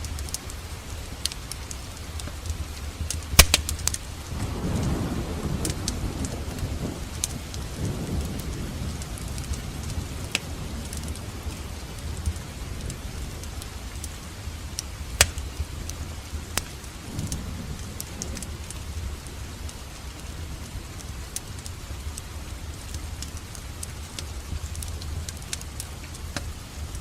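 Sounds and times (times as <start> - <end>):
wood fire crackling: 0.0 - 27.0
loud sharp pop of fire: 3.4 - 4.0, 15.2 - 15.5.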